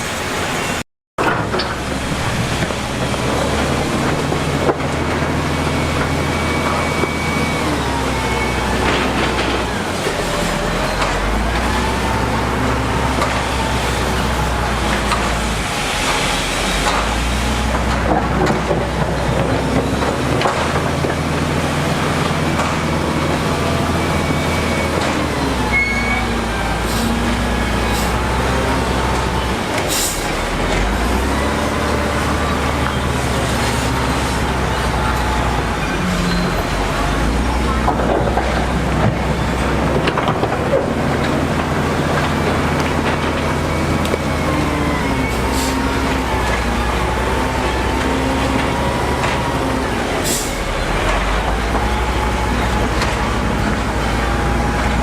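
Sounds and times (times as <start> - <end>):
heavy diesel machinery running: 0.0 - 55.0
high metallic squeals: 5.2 - 17.7, 21.5 - 37.8.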